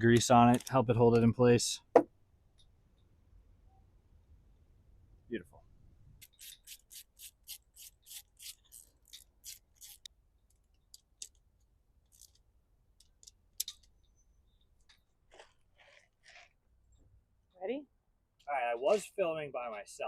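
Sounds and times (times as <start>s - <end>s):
hand tool rasping strokes: 6.2s - 10.1s.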